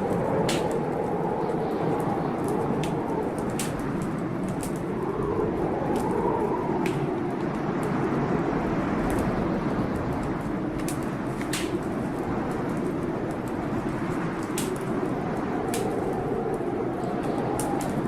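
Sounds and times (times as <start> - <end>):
blizzard wind howling: 0.0 - 18.0
wood fire crackling and popping: 0.0 - 18.0.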